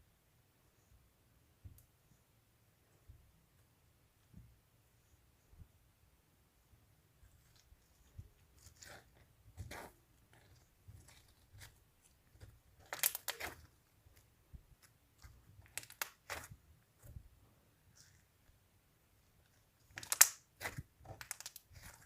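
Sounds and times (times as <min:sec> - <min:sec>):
slime crackling and popping: 0:12.4 - 0:13.7, 0:15.2 - 0:16.5, 0:19.9 - 0:22.0.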